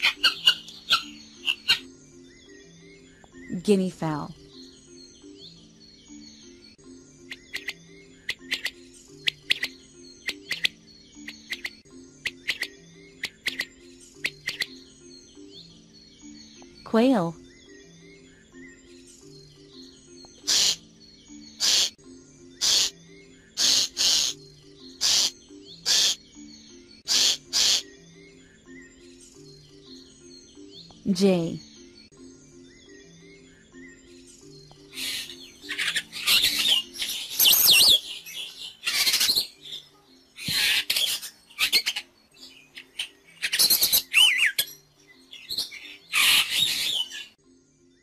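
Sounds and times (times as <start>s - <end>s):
starling harsh rasping calls: 0.0s - 1.9s, 7.3s - 14.7s, 20.4s - 20.9s, 21.5s - 22.0s, 22.6s - 26.4s, 27.0s - 28.0s, 34.9s - 39.6s, 40.4s - 42.1s, 45.3s - 47.3s
soft background music: 0.0s - 48.0s
bird harsh screech calls: 20.4s - 20.9s, 21.5s - 22.0s, 22.6s - 26.4s, 27.0s - 28.0s, 38.8s - 39.5s, 45.6s - 47.3s.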